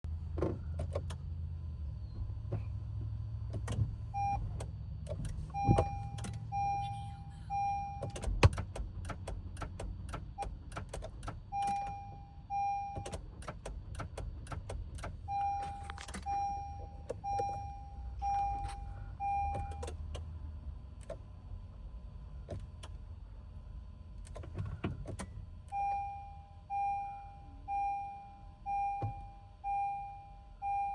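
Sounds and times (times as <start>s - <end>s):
dashboard warning chime beeping: 3.6s - 9.3s, 10.2s - 20.2s, 25.6s - 30.9s
rapid irregular electrical clicking: 8.0s - 11.9s, 13.0s - 16.3s.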